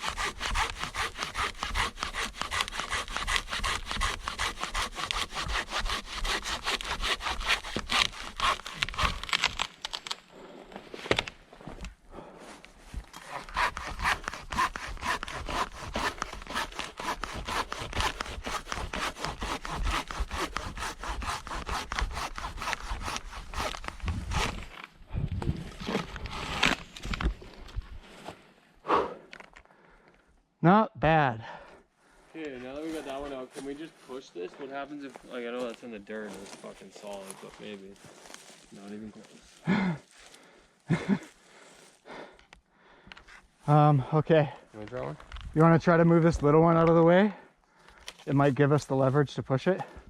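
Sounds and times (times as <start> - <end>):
hand saw cutting wood: 0.0 - 9.7, 13.1 - 24.9.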